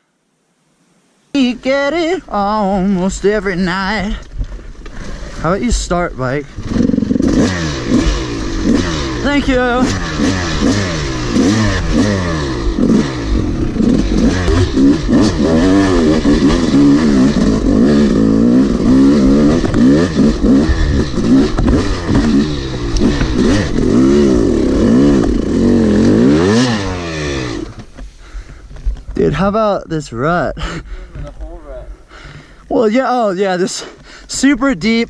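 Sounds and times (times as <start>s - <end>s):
two-stroke dirt bike revving: 4.9s - 28.0s.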